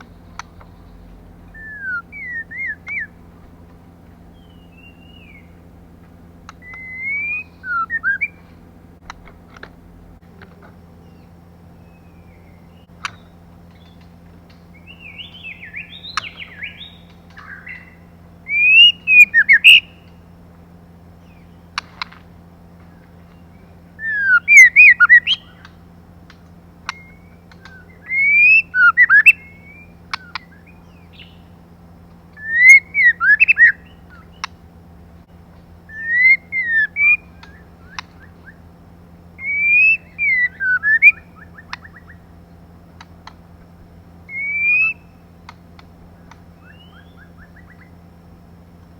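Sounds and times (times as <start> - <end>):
bird whistled calls: 0.0 - 3.2, 4.3 - 5.6, 6.5 - 8.6, 11.0 - 14.0, 14.7 - 20.2, 22.9 - 25.8, 26.8 - 31.6, 32.3 - 34.6, 35.8 - 38.7, 39.3 - 42.3, 44.2 - 45.3, 46.1 - 48.1
faint steady hum: 0.0 - 48.9
sharp clicks: 9.0 - 9.8, 37.0 - 38.5, 41.6 - 42.2, 42.9 - 43.5, 45.4 - 46.5.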